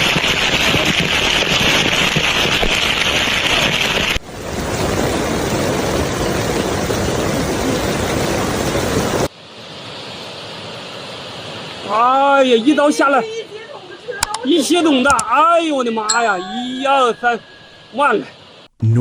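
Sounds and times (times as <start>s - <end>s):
heavy rain: 0.0s - 9.3s
rushing floodwater: 0.0s - 14.0s.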